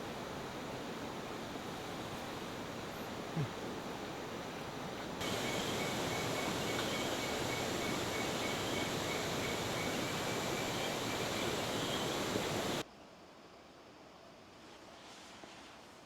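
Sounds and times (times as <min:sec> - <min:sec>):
river water rushing: 0:03.9 - 0:12.8.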